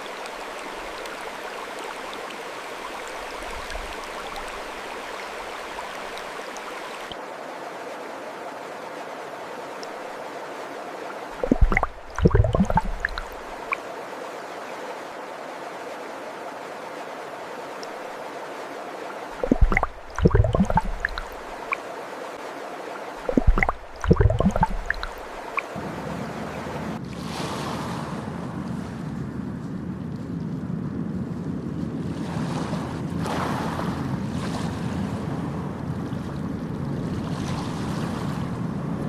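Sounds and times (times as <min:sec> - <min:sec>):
flowing water: 0:00.0 - 0:27.0
ocean waves washing in: 0:00.0 - 0:29.4.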